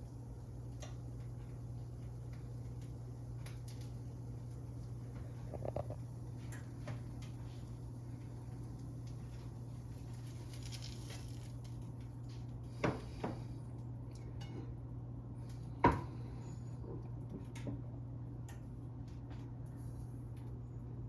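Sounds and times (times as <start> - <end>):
low indoor hum: 0.0 - 21.0.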